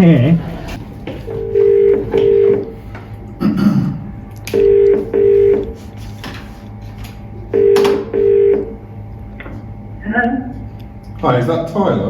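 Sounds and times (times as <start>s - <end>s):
telephone ringing tone: 1.2s - 2.8s, 4.5s - 5.8s, 7.5s - 8.8s.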